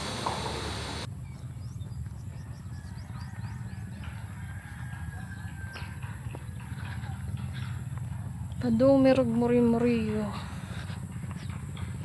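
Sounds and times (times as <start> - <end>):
loud noisy wash: 0.0 - 1.1.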